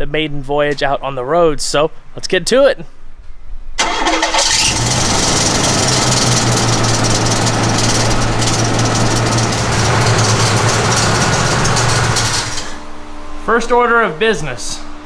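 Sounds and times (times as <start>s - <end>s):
starter squealing and clanging: 3.8s - 12.8s
engine running steadily: 3.8s - 13.2s.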